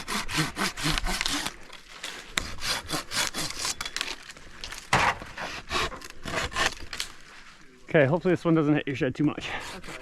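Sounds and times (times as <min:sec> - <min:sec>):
hand saw cutting branch: 0:00.0 - 0:04.2, 0:04.9 - 0:07.0, 0:09.4 - 0:10.0.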